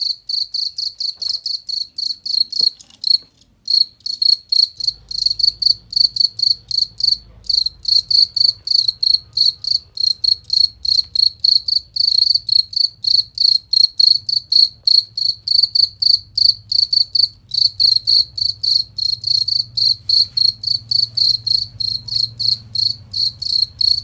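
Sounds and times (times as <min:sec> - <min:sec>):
cricket chirping: 0:00.0 - 0:24.0.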